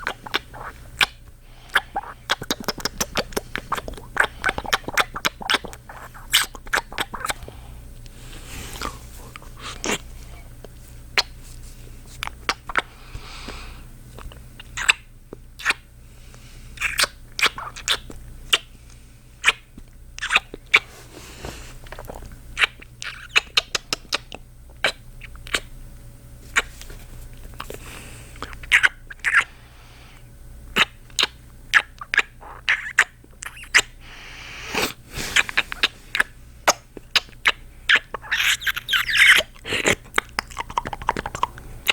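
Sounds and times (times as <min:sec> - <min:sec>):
wet kissing smacks: 0:00.0 - 0:07.4, 0:12.2 - 0:12.9, 0:14.2 - 0:15.0, 0:15.6 - 0:15.8, 0:16.8 - 0:18.7, 0:19.4 - 0:19.6, 0:20.2 - 0:20.8, 0:21.9 - 0:25.7, 0:26.5 - 0:26.8, 0:28.4 - 0:29.5, 0:30.7 - 0:34.0, 0:34.7 - 0:41.9
soft breathing: 0:07.2 - 0:12.2, 0:12.8 - 0:14.0, 0:16.0 - 0:16.8, 0:20.8 - 0:22.2, 0:26.6 - 0:28.6, 0:29.4 - 0:30.3, 0:34.0 - 0:36.6.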